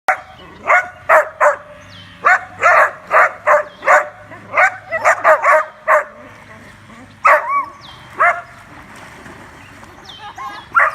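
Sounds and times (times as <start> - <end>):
dog barking: 0.1 - 6.2, 7.2 - 7.6.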